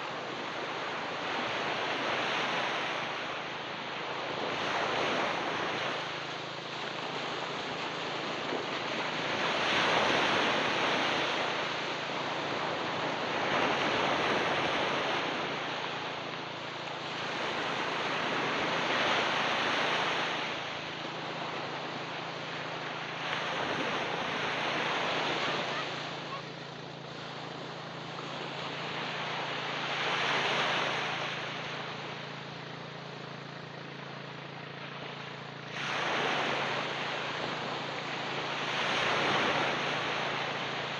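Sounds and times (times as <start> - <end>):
ocean waves breaking on beach: 0.0 - 40.9.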